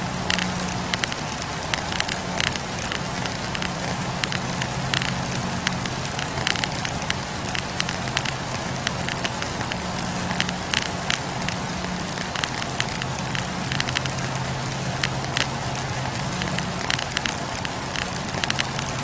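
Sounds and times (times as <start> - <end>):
campfire crackling: 0.0 - 19.0
low steady hum: 0.0 - 19.0.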